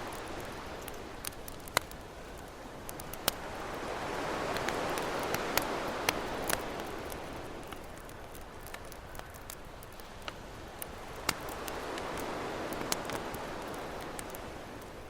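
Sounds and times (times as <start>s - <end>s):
campfire crackling: 0.0s - 15.0s
ocean waves: 2.8s - 15.0s.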